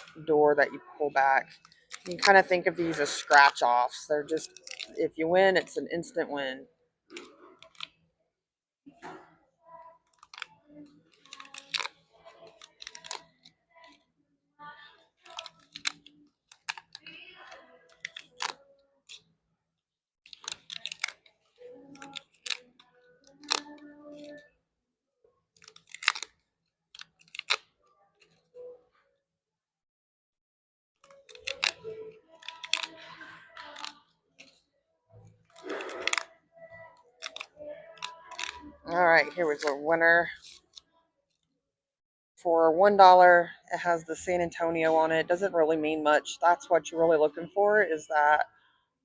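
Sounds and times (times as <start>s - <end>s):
paper tickets tearing: 1.3s - 6.1s, 10.1s - 14.0s, 15.2s - 19.2s, 20.3s - 24.4s, 25.6s - 26.4s, 27.0s - 27.7s, 31.0s - 34.6s, 35.5s - 40.8s.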